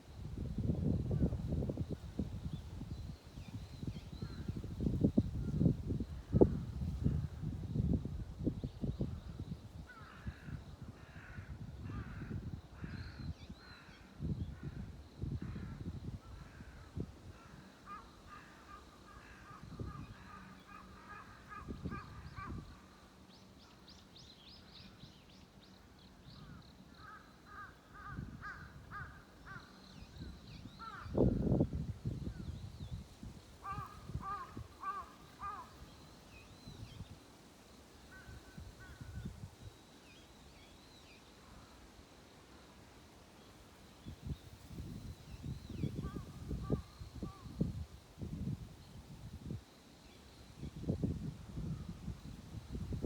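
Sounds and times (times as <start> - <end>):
crows cawing: 27.0 - 29.8, 33.6 - 35.8.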